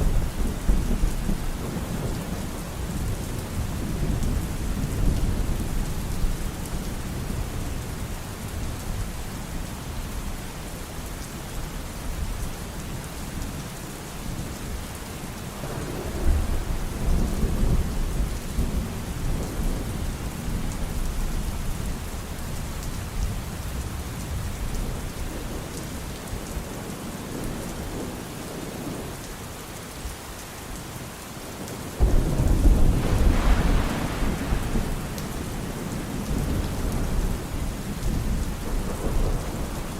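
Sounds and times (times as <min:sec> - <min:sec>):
rolling thunder: 0:00.0 - 0:07.6, 0:15.6 - 0:21.6, 0:32.0 - 0:39.9
steady rain: 0:00.0 - 0:39.9
thunder clap: 0:32.0 - 0:39.9.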